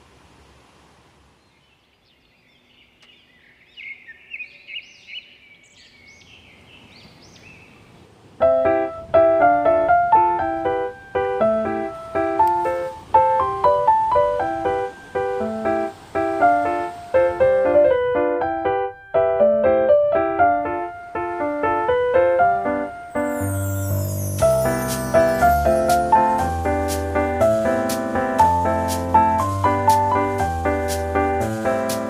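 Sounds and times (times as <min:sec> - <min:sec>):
bird chirping and warbling: 0:01.4 - 0:07.9, 0:23.2 - 0:25.4
piano music: 0:08.4 - 0:32.0.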